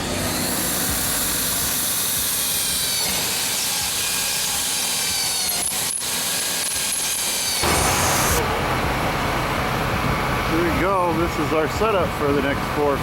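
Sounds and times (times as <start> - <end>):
power tool grinding steel: 0.0 - 8.4.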